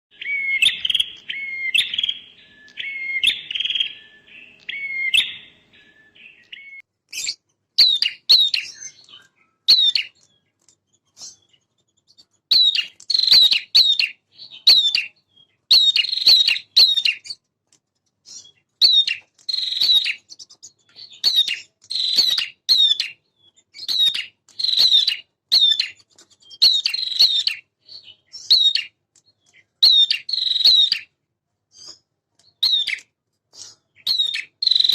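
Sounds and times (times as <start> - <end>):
prinia singing: 0.1 - 10.2.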